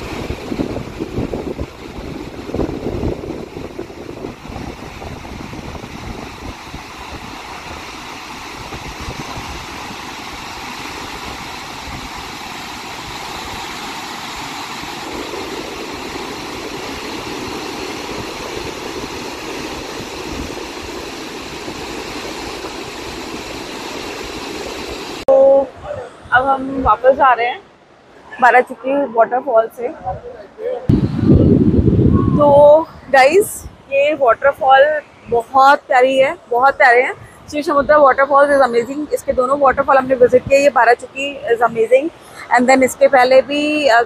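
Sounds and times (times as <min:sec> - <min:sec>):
waterfall rushing: 0:00.0 - 0:26.4.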